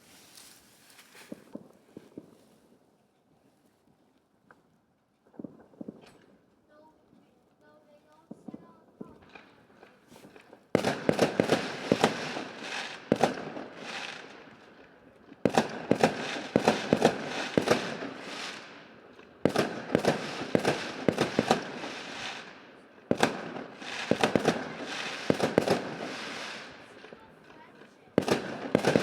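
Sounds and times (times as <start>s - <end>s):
fireworks crackling bangs: 5.3s - 6.4s, 8.2s - 14.7s, 15.4s - 29.0s.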